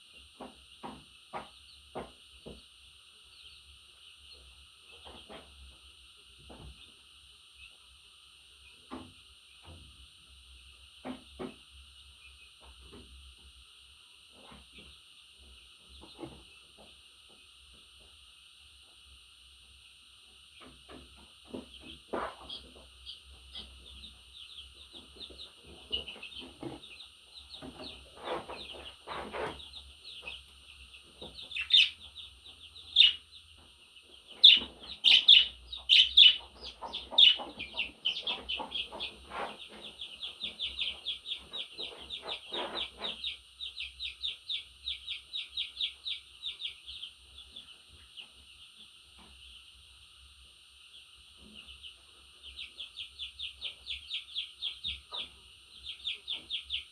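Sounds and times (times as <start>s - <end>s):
budgerigar warbling and chirping: 31.4s - 32.1s, 32.8s - 33.3s, 34.3s - 39.0s.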